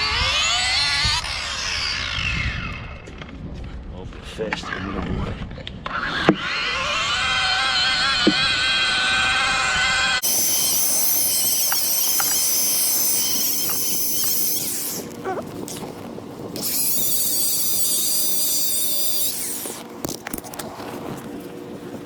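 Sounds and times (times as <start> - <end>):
electric buffer whining: 6.0 - 20.4.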